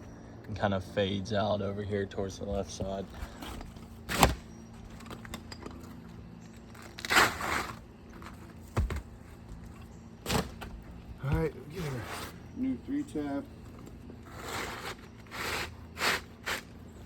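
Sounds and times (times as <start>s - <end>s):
shingles scraping rustle: 6.5s - 9.2s, 11.7s - 12.4s, 14.2s - 16.8s.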